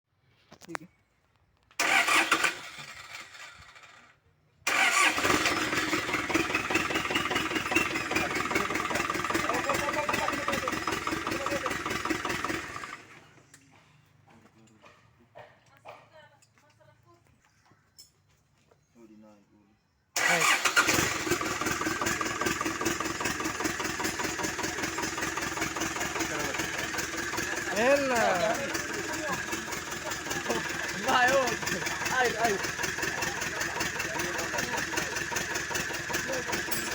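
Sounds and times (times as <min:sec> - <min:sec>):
diesel engine starting and clattering: 0:01.8 - 0:04.1, 0:04.7 - 0:13.3, 0:20.2 - 0:36.9.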